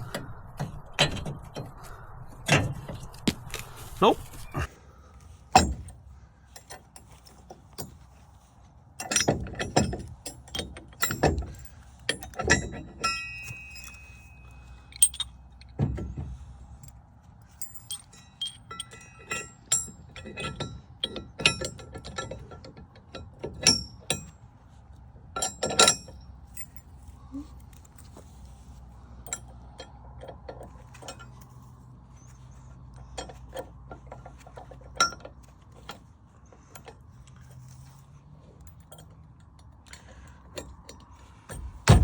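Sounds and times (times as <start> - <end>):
metal-on-metal clanks: 0.0 - 3.7, 5.5 - 8.0, 9.0 - 16.5, 17.6 - 24.4, 25.3 - 26.9, 38.6 - 42.0.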